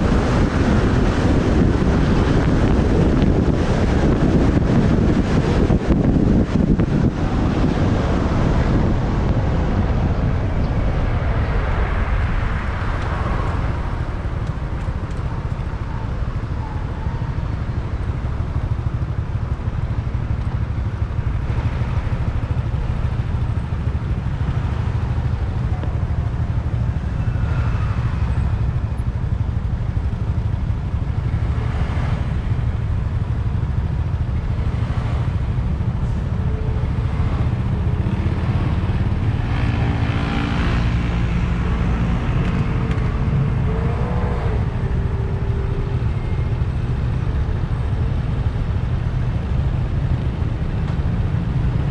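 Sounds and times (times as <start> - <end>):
wind on microphone: 0.0 - 19.0
traffic vehicles: 0.0 - 51.9
motorcycle engine: 11.4 - 51.9.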